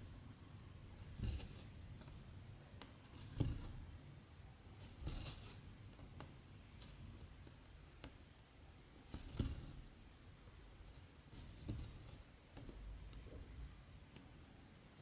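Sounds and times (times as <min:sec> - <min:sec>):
needle and thread through fabric: 0:00.0 - 0:04.0, 0:04.8 - 0:07.6, 0:09.0 - 0:10.0, 0:10.9 - 0:13.2.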